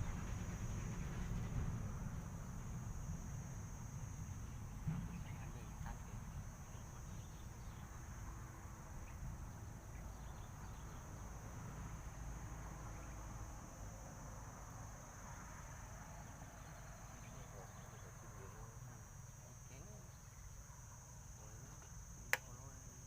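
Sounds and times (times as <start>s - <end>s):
low rumble: 0.0s - 14.0s
insects buzzing: 0.0s - 23.0s.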